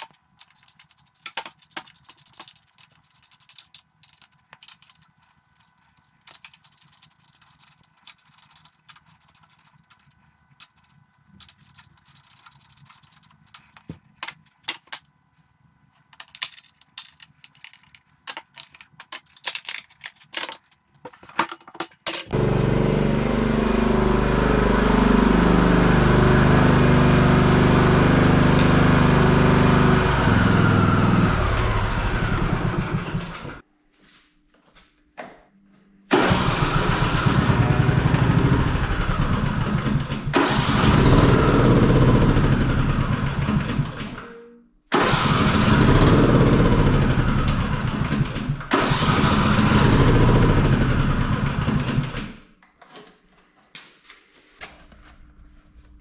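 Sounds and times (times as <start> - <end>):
riding mower engine running: 22.3 - 33.6, 36.1 - 44.2, 45.0 - 52.3.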